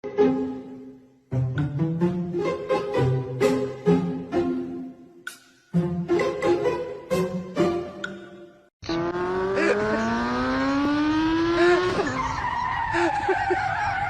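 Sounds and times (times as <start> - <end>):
motor spinning up and whining: 8.8 - 11.9.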